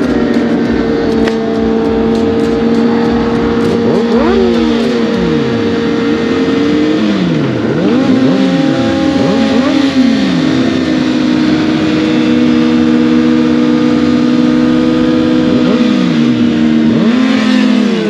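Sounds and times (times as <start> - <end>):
vehicle engines revving: 0.0 - 18.0.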